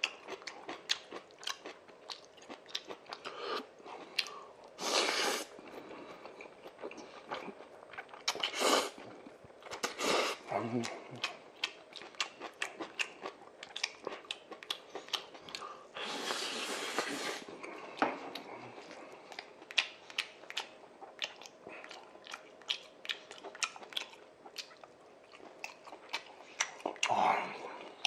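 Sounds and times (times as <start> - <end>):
wet chewing clicks and smacks: 0.0 - 3.4, 5.7 - 8.6, 10.8 - 15.7, 18.3 - 27.1.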